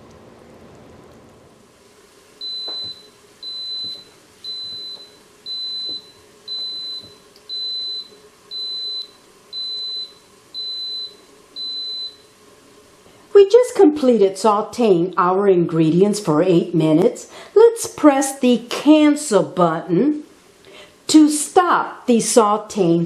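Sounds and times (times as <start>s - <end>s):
pressure cooker beeping: 2.4s - 12.2s.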